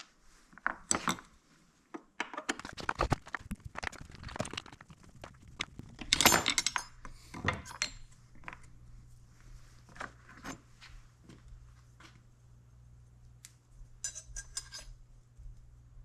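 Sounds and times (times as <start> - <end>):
metal tools clinking and rattling: 6.0 - 8.2, 14.0 - 14.9.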